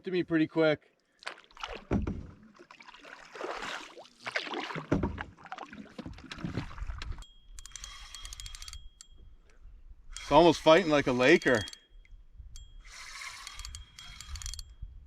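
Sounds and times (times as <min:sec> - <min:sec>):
paddle strokes splashing water: 0:01.1 - 0:07.2
sharp mechanical clicks: 0:07.6 - 0:09.1, 0:10.1 - 0:11.9, 0:12.8 - 0:14.8.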